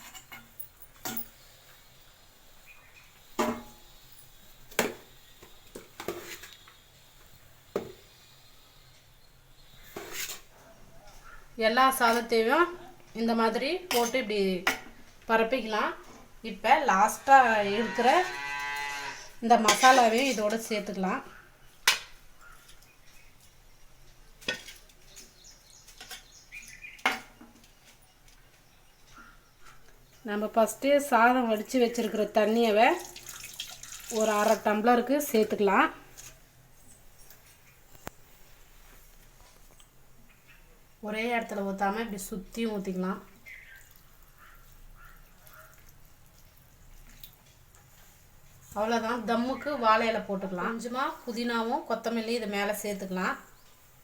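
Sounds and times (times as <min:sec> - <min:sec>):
faint bird chirps: 0:43.3 - 0:45.8.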